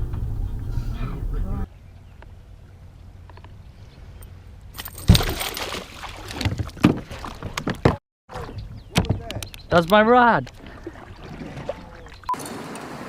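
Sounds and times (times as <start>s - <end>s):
heavy thump: 0.0s - 1.6s
water sloshing around boat: 4.8s - 9.3s, 9.9s - 13.0s
loud splash: 5.1s - 7.3s.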